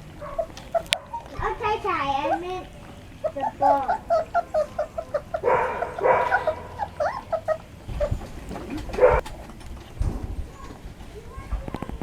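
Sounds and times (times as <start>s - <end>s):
puppies whining and yipping: 0.2s - 9.2s.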